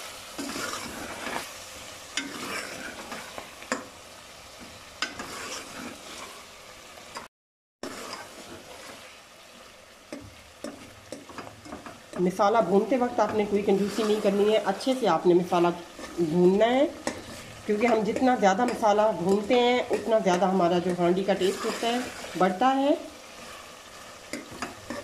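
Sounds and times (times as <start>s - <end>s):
food sizzling in a pot: 0.0s - 25.0s
metal spoon scraping a pot: 0.4s - 1.5s, 2.2s - 3.3s, 5.0s - 6.4s, 7.8s - 9.0s, 10.7s - 12.0s, 15.9s - 16.3s.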